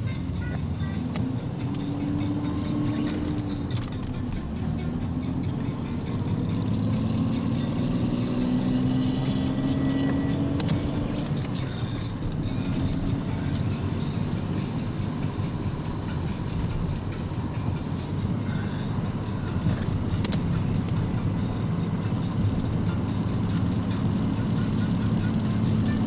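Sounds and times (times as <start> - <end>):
car engine accelerating: 0.0 - 26.0
road noise: 0.0 - 26.0.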